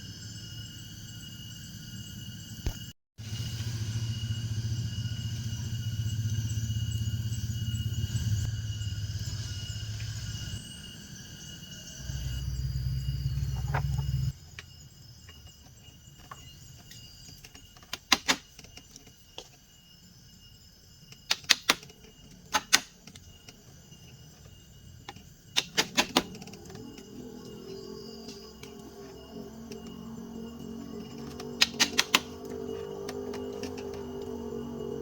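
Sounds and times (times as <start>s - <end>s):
high insect drone: 0.0s - 35.0s.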